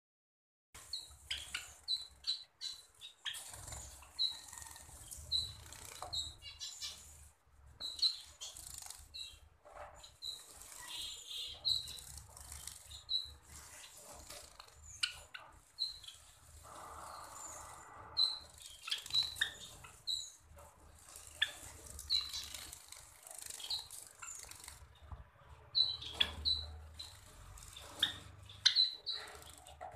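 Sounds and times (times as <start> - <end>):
sparrows chirping: 0.8 - 29.9
wings flapping and rustling: 3.3 - 6.4, 8.4 - 11.1, 11.8 - 15.7, 20.6 - 25.2.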